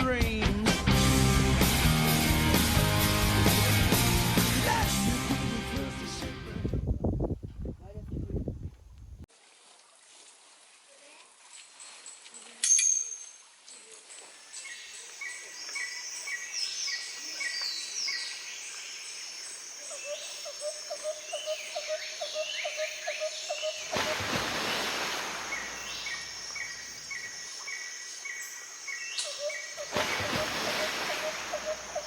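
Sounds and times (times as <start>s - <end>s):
birds chirping and calling: 14.1s - 24.2s, 25.4s - 32.0s
loud steady hiss: 24.0s - 27.1s.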